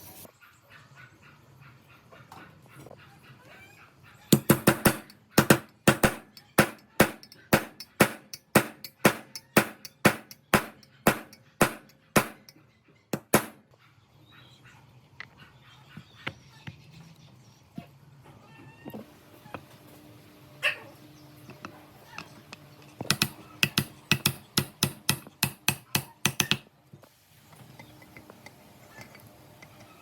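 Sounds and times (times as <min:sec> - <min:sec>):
loud sharp knocks: 0:04.4 - 0:12.5, 0:13.2 - 0:13.6.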